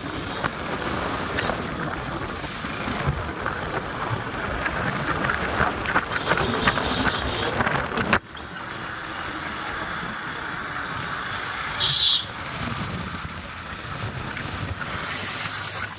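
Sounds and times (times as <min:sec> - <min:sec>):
wind buffeting microphone: 0:00.0 - 0:08.9, 0:12.3 - 0:15.3.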